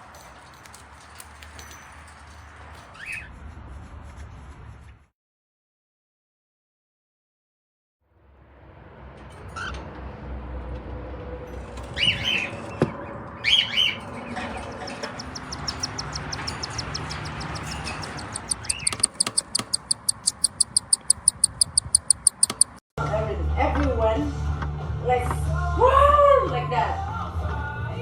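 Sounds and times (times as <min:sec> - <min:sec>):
bird squawks: 0:12.0 - 0:12.8, 0:13.4 - 0:22.7
high chirping clicks: 0:15.0 - 0:22.8.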